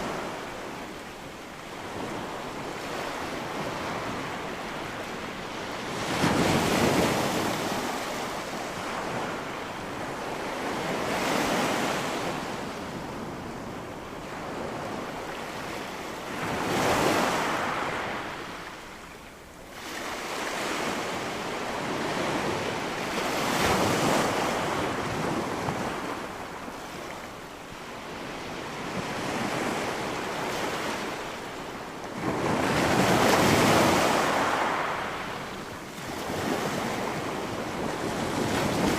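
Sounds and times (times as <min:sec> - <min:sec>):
waves breaking on shore: 0:19.7 - 0:38.9.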